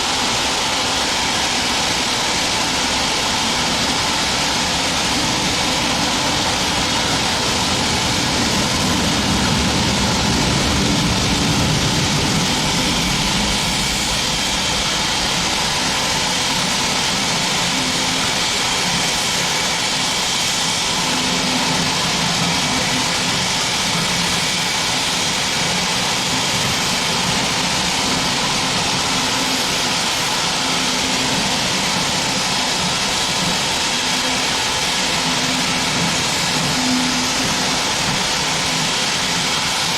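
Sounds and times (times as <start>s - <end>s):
hiss of escaping steam: 0.0s - 39.9s.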